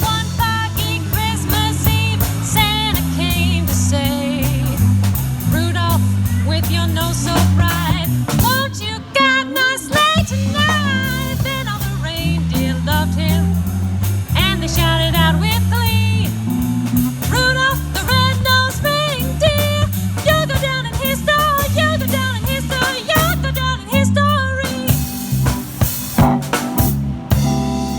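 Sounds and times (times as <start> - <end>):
drum kit and bass: 0.0 - 27.9
person singing: 5.6 - 13.6, 17.3 - 25.2.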